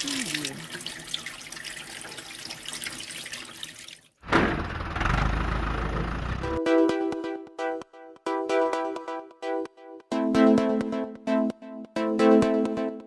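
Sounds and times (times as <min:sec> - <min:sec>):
water spraying and splashing: 0:00.0 - 0:04.2
music: 0:06.4 - 0:13.0.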